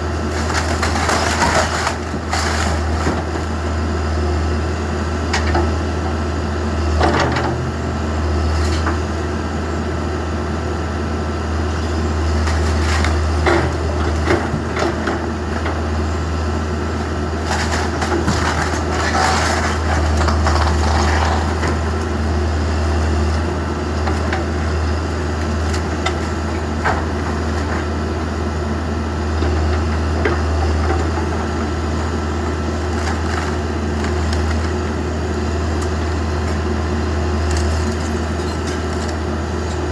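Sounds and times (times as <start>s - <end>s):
backhoe engine running: 0.0s - 39.9s
wood cracking and crunching: 0.2s - 3.6s, 12.3s - 15.2s, 17.4s - 22.2s, 25.3s - 27.8s, 32.6s - 34.9s, 37.4s - 39.7s.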